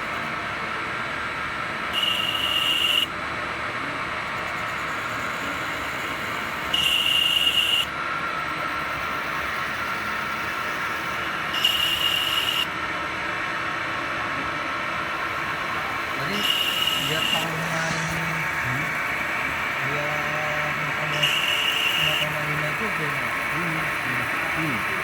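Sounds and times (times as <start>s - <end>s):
cutting tool squeal and hiss: 2.0s - 3.1s, 6.7s - 7.9s, 11.3s - 12.7s, 16.0s - 25.0s
lathe running: 8.9s - 25.0s.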